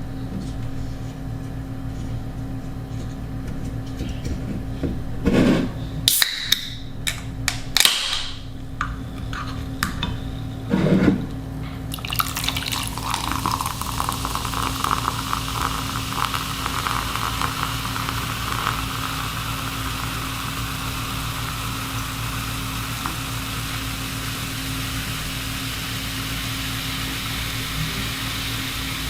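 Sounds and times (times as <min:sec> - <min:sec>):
liquid pouring into container: 0:11.9 - 0:29.0.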